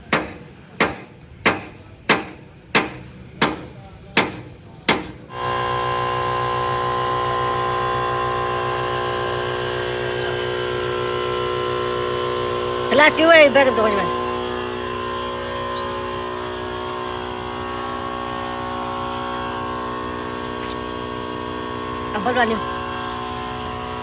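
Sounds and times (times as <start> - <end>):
loud mechanical drone: 5.2 - 24.0.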